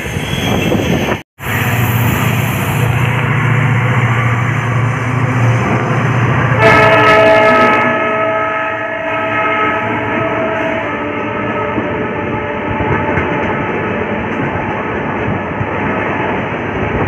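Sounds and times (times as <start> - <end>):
diesel locomotive rushing past: 0.0 - 17.0
train rumbling on rails: 0.0 - 17.0
multi-tone train horn: 6.5 - 14.0.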